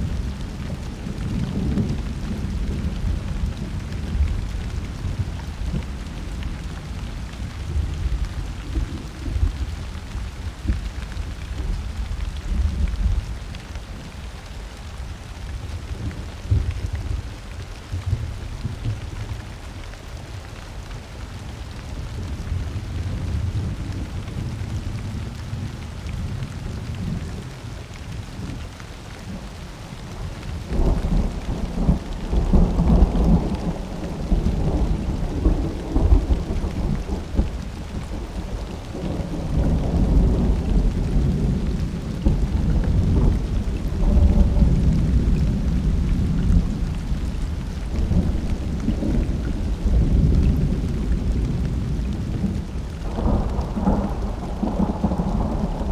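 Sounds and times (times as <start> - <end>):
steady rain: 0.0 - 55.9
rolling thunder: 29.8 - 55.9.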